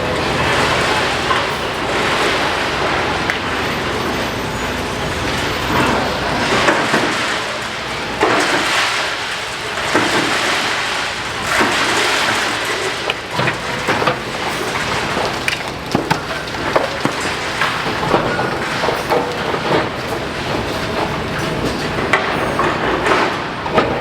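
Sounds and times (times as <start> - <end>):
masonry crunching and rubble falling: 5.2 - 24.0.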